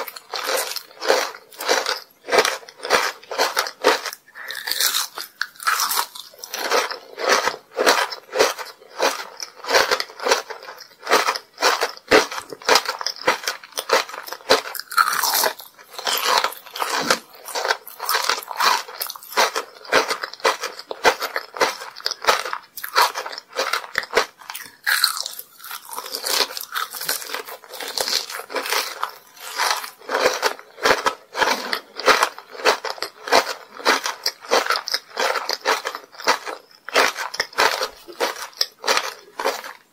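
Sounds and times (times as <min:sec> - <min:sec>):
candy crunching while chewing: 0:00.0 - 0:39.9.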